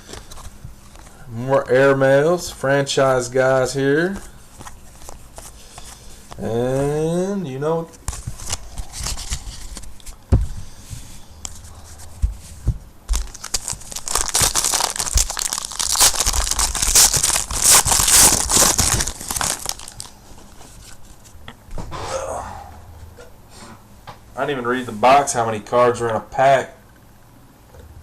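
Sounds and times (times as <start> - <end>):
taps and handling sounds: 4.1 - 6.9
plastic wrapper tearing and crinkling: 13.1 - 20.2.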